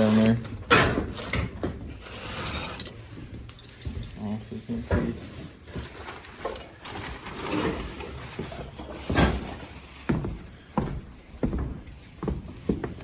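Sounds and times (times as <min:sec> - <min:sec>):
rustling and shuffling: 0:00.0 - 0:13.0.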